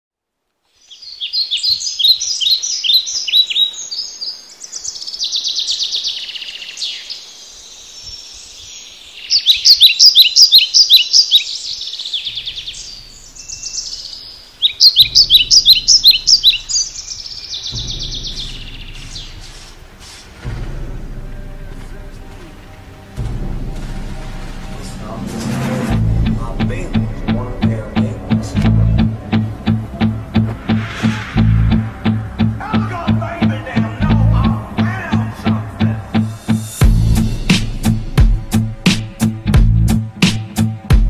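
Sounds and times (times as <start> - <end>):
birds singing: 0.7 - 31.0, 31.7 - 41.0
low steady rumble: 12.4 - 38.8.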